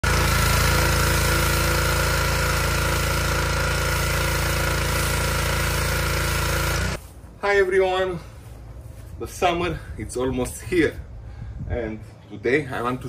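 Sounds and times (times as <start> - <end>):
pressure washer pulsing drone: 0.0 - 7.0
pressure washer hiss: 0.1 - 7.0.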